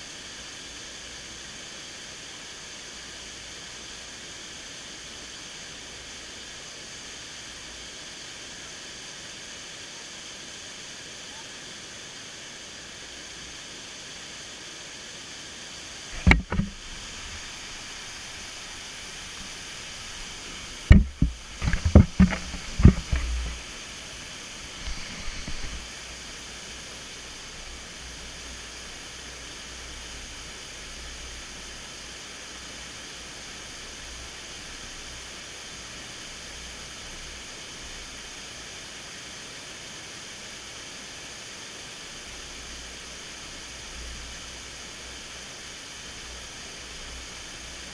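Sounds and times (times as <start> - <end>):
waterfall rushing: 15.7 - 31.6
sharp knocks and bumps: 16.2 - 16.8, 20.8 - 23.6.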